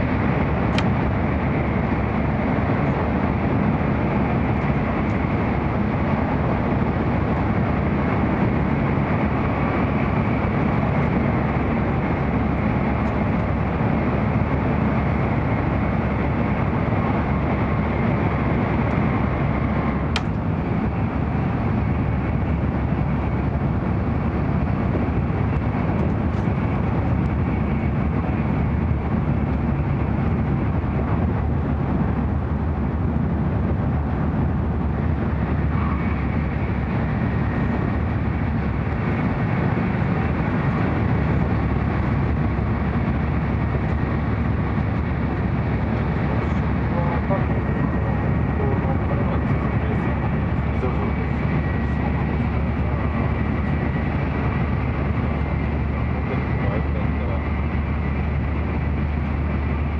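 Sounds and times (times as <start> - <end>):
train cabin rumble: 0.0 - 59.9.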